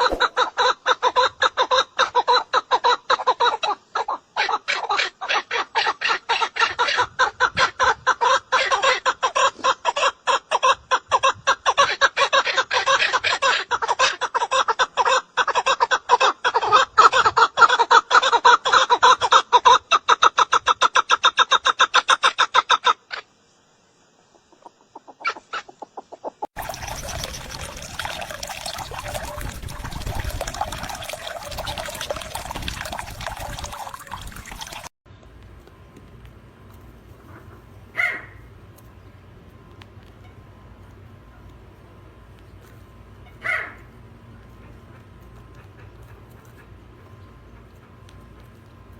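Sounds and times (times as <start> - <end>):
bird rapid repeated calls: 0.0 - 10.5, 25.0 - 34.9.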